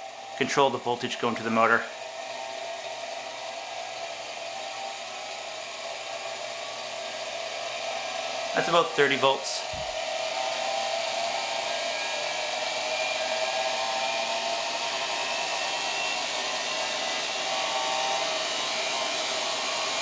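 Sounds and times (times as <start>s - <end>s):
vacuum cleaner motor whining: 0.0s - 20.0s.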